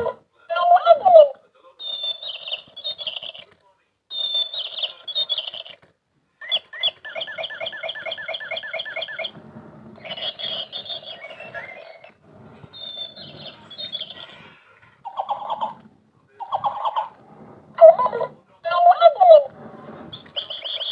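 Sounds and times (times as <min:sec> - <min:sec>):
bird chattering: 0:01.8 - 0:03.5, 0:04.1 - 0:05.8, 0:06.4 - 0:09.4, 0:10.0 - 0:17.2, 0:20.1 - 0:20.9
bird chirping: 0:01.8 - 0:03.5, 0:04.1 - 0:05.8, 0:06.4 - 0:09.4, 0:10.0 - 0:17.2, 0:20.1 - 0:20.9
bird squawks: 0:01.8 - 0:03.5, 0:04.1 - 0:05.8, 0:06.4 - 0:09.4, 0:10.0 - 0:15.8, 0:16.4 - 0:17.2, 0:20.1 - 0:20.9.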